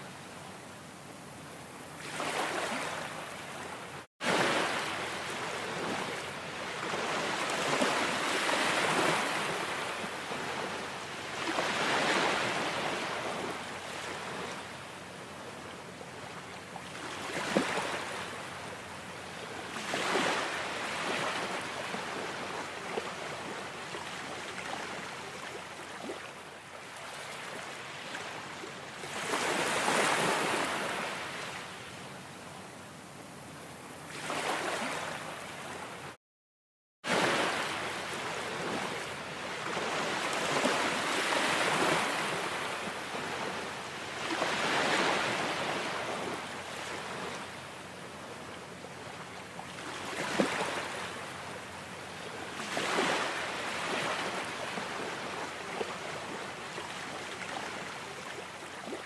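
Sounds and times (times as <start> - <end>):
ocean waves washing in: 1.9 - 14.8, 37.1 - 48.2.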